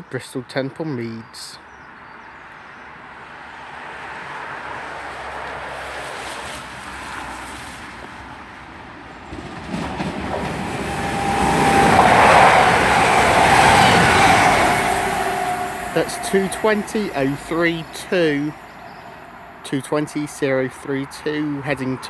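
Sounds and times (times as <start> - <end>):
train rumbling past: 5.0 - 22.0
train whine: 9.0 - 21.8.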